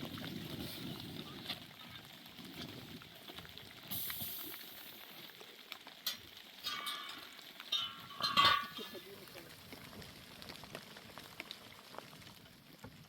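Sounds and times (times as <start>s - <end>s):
metal clanking with ringing: 6.6s - 9.0s.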